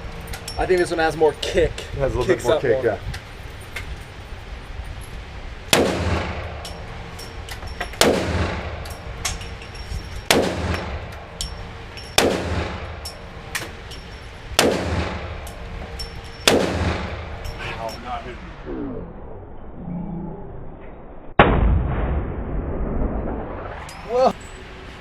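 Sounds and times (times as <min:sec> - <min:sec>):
gunshots with echo: 0:08.0 - 0:08.8, 0:10.3 - 0:11.1, 0:12.2 - 0:13.0, 0:14.6 - 0:15.4, 0:16.4 - 0:17.4.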